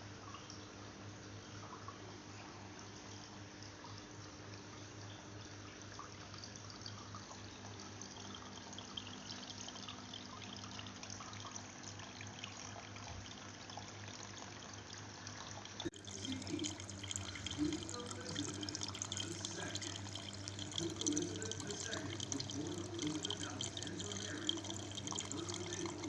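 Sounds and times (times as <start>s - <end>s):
fountain water trickling: 3.0s - 26.0s
steady low hum: 15.8s - 26.0s.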